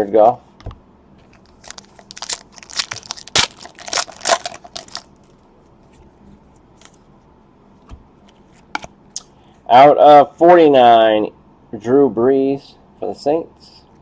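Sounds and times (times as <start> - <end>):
trading cards rustling: 1.3 - 5.4.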